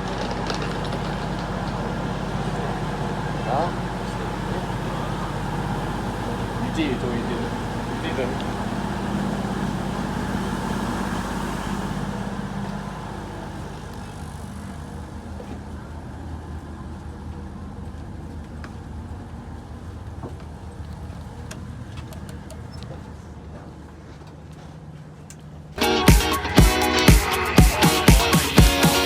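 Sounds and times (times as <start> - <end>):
diesel train engine humming: 0.0 - 29.0.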